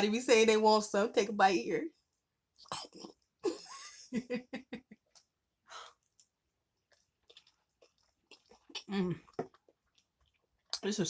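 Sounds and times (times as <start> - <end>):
person eating close to microphone: 2.6 - 3.4, 6.0 - 10.9.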